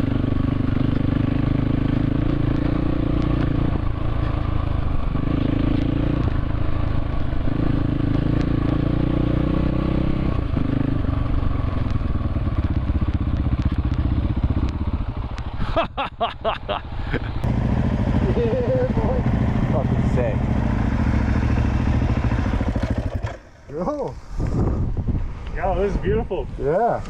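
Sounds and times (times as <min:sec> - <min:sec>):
dirt bike engine running: 0:10.5 - 0:15.6, 0:16.8 - 0:24.7.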